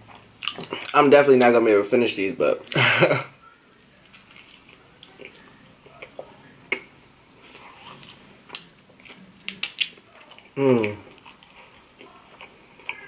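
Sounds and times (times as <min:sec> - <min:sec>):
man chewing wet sticky food: 0:00.0 - 0:01.0, 0:04.0 - 0:13.0.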